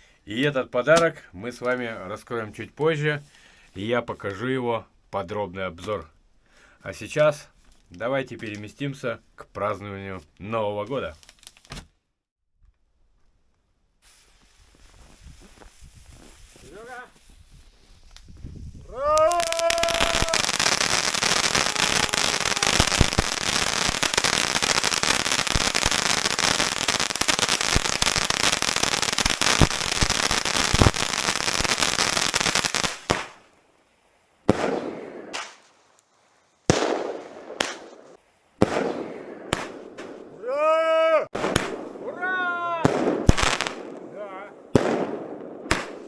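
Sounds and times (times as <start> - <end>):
fireworks crackling and banging: 14.0 - 33.8, 34.4 - 40.5, 41.3 - 46.0.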